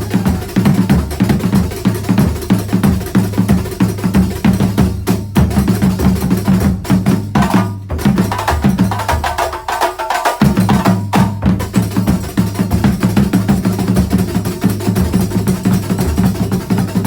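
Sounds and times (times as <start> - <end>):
frame drums and percussion playing: 0.0 - 17.0
low drums: 0.0 - 17.0.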